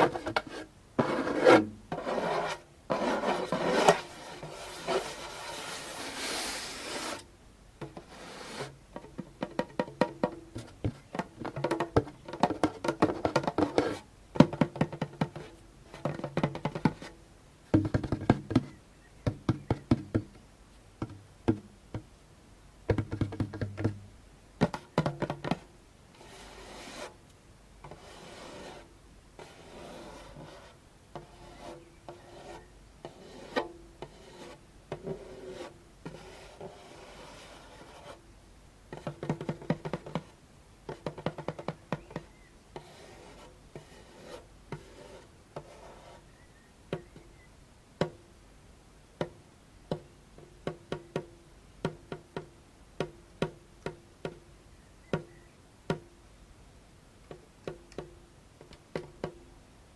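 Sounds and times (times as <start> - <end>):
scratching and rubbing on drumhead: 0.0 - 7.2, 7.8 - 17.2, 24.6 - 27.2, 27.8 - 38.2, 38.9 - 46.4
djembe drum tapped with fingertips: 17.7 - 20.4, 21.0 - 22.1, 22.9 - 25.6.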